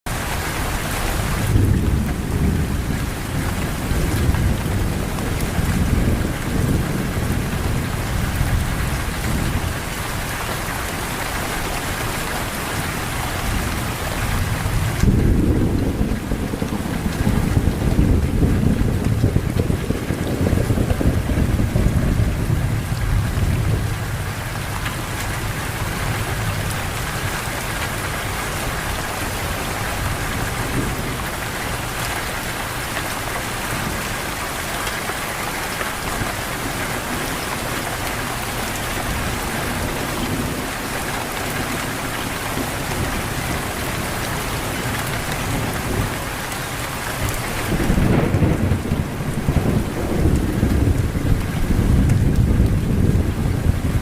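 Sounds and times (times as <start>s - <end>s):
steady rain falling: 0.1s - 54.0s.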